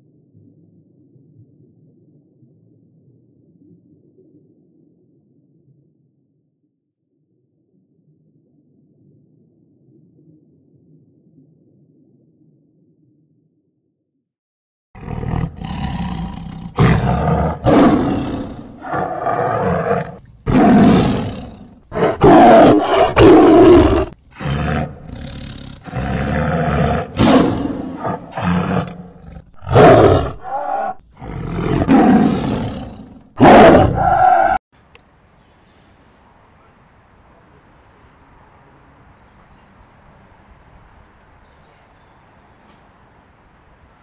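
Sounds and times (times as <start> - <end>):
tiger roaring: 15.0 - 34.6.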